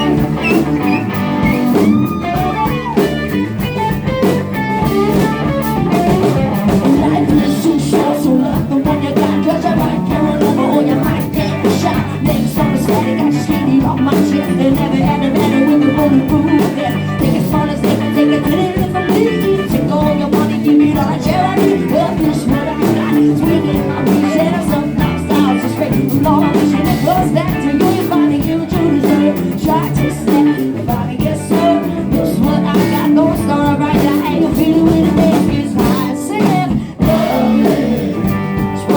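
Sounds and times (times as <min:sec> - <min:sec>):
person singing: 0:00.0 - 0:38.9
rock band playing: 0:00.0 - 0:38.9.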